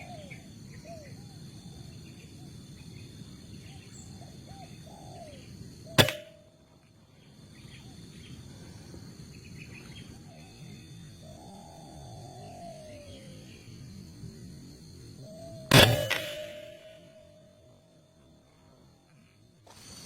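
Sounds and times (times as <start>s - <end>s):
birds calling: 0.0s - 8.5s
insects buzzing: 0.0s - 20.0s
air rifle shot: 6.0s - 6.4s, 15.7s - 17.4s.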